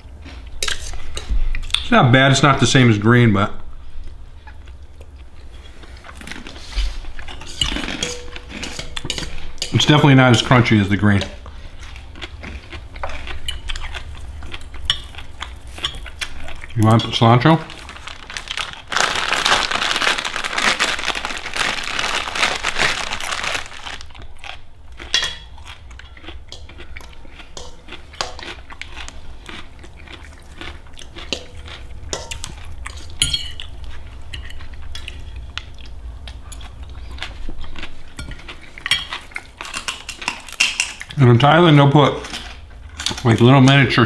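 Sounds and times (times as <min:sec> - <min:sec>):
cutlery clinking on dishes: 0:07.3 - 0:10.5, 0:25.0 - 0:29.0, 0:31.2 - 0:33.7
plastic packaging crinkling: 0:16.2 - 0:24.6.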